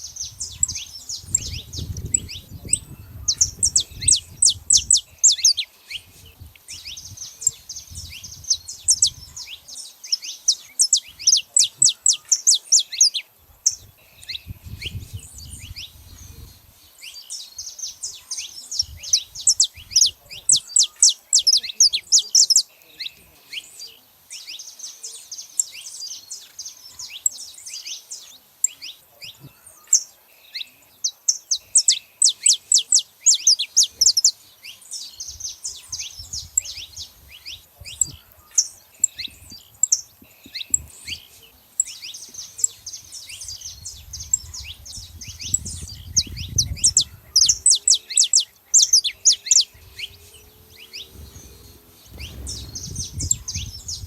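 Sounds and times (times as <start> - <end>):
finches singing and chirping: 0.0 - 54.0
faint low rumble: 49.5 - 54.0.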